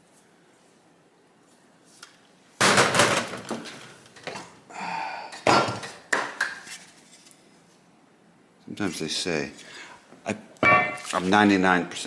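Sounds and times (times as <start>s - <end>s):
sharp metal clunk: 10.6s - 11.2s.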